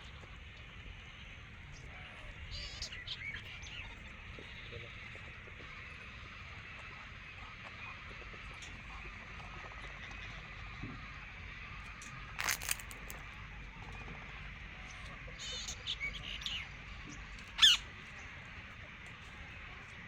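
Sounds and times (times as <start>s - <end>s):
parrots squawking: 12.4s - 13.1s, 17.6s - 17.9s.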